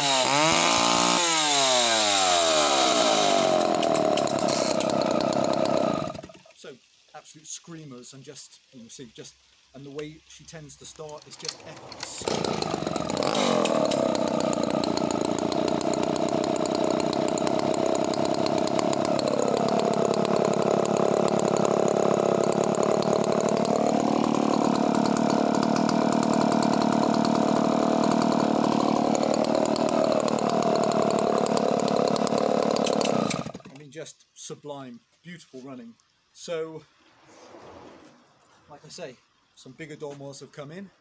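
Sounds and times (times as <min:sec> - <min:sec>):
chainsaw engine running: 0:00.0 - 0:06.4, 0:11.1 - 0:33.7.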